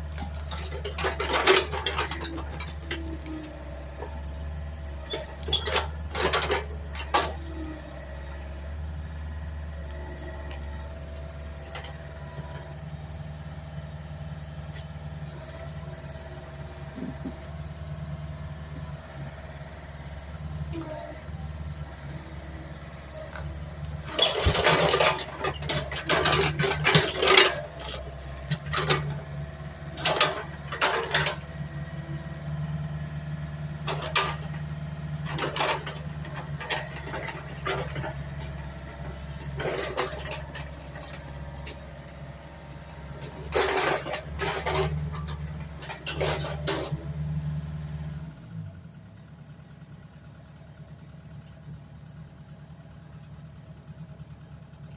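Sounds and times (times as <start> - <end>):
truck engine running: 0.0 - 54.9
loud rattling and clattering: 0.1 - 3.4, 5.0 - 7.7, 23.3 - 31.5, 33.8 - 34.6, 35.2 - 41.8, 43.2 - 47.1.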